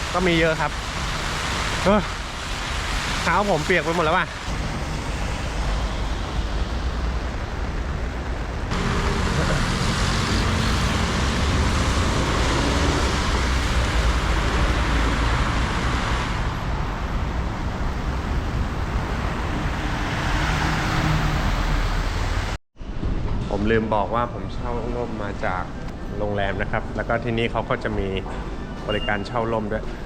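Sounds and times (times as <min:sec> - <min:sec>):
tyre hiss on wet road: 0:00.0 - 0:07.0, 0:08.7 - 0:16.6.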